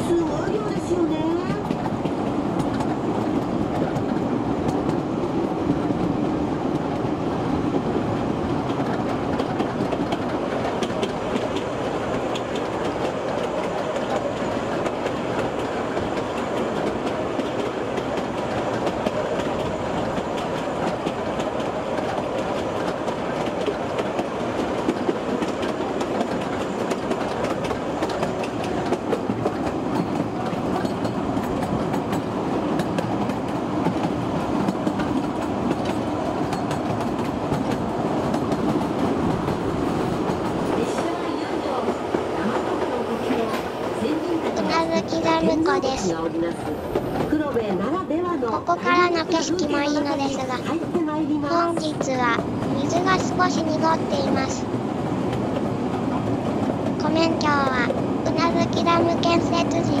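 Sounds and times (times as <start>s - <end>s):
train cars clicking and rattling: 0.0s - 60.0s
train wheels rumbling on rail: 0.0s - 60.0s.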